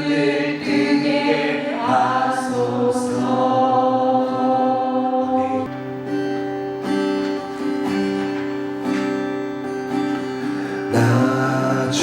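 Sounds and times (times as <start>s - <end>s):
acoustic guitar strumming chords: 0.0s - 12.0s
held sung chord: 10.7s - 12.0s.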